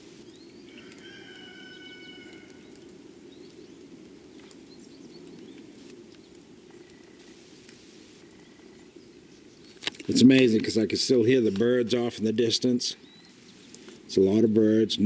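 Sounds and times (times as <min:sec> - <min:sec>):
distant birds calling: 0:00.0 - 0:14.4.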